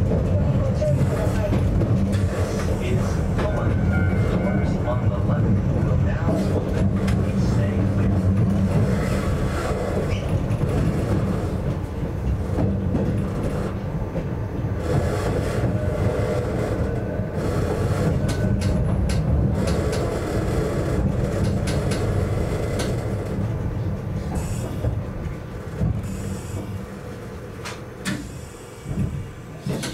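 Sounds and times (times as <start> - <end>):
electric train rumbling: 0.0 - 29.9
wheel clicks over rail joints: 29.0 - 29.9.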